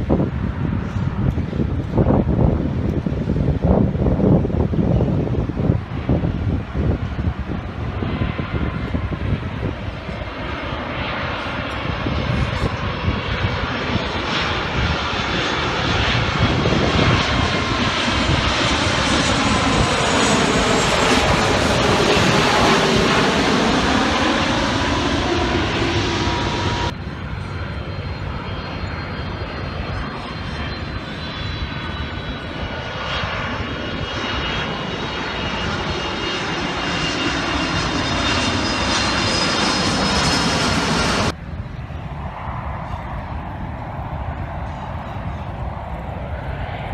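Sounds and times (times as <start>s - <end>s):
aircraft engine whining: 0.0s - 46.9s.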